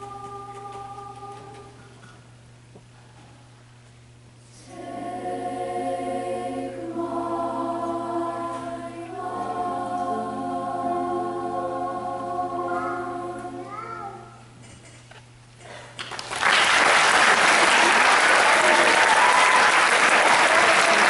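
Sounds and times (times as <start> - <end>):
choir singing: 0.0 - 1.8, 4.6 - 13.7.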